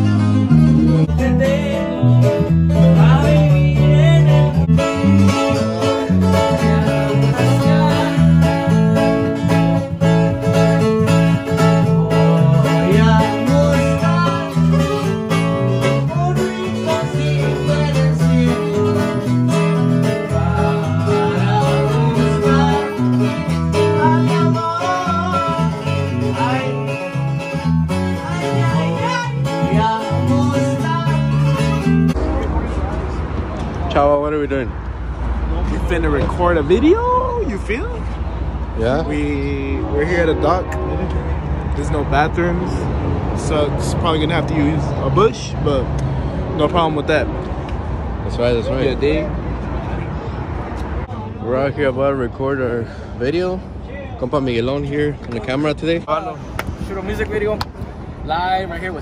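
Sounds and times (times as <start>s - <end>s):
acoustic guitars: 0.0s - 51.7s
person singing: 1.0s - 9.2s, 11.4s - 32.1s.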